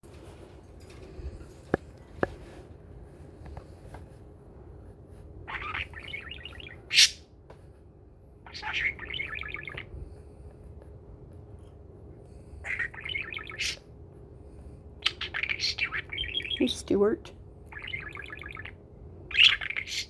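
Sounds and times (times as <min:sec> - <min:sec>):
bird high-pitched call: 0:05.5 - 0:07.2, 0:08.5 - 0:09.9, 0:12.7 - 0:13.8, 0:17.7 - 0:20.0
budgerigar chattering: 0:05.5 - 0:07.2, 0:08.5 - 0:09.9, 0:12.7 - 0:13.8, 0:15.0 - 0:16.8, 0:17.7 - 0:20.0.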